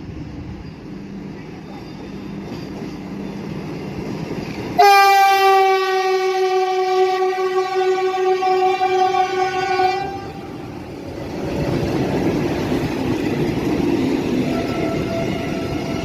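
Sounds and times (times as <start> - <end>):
train rumbling: 0.0 - 16.0
train horn: 4.8 - 10.7, 14.4 - 16.0.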